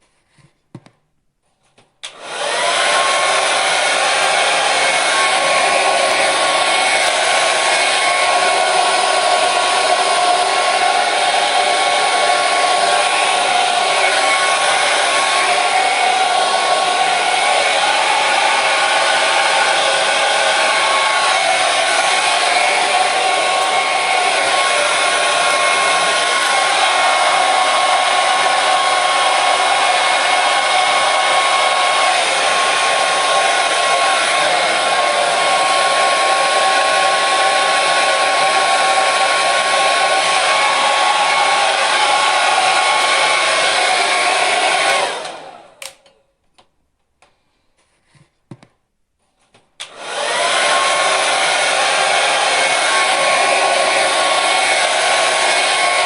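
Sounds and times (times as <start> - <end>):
hair dryer blowing: 2.0 - 46.2, 49.8 - 56.0.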